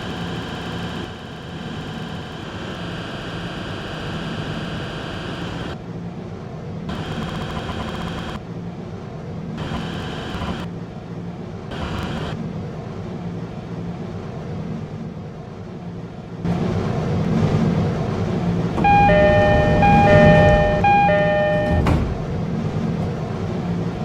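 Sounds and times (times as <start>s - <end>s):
buzzing whine: 0.0s - 5.8s, 6.9s - 8.4s, 9.6s - 10.7s, 11.7s - 12.4s, 18.8s - 22.3s.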